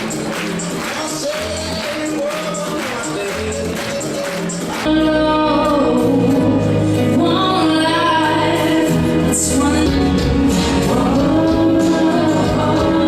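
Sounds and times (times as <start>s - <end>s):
band accompaniment: 0.0s - 13.0s
voices singing together: 7.2s - 13.0s.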